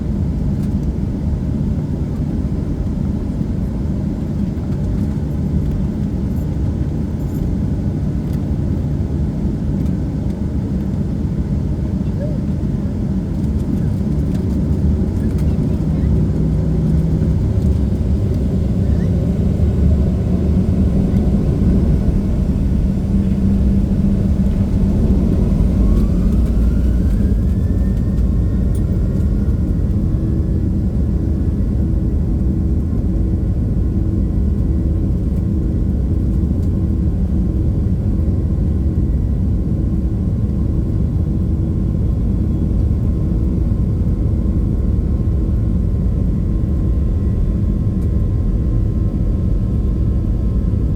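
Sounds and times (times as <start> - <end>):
jet engine cabin rumble: 0.0 - 50.9
jet engine whine rising: 14.5 - 32.4.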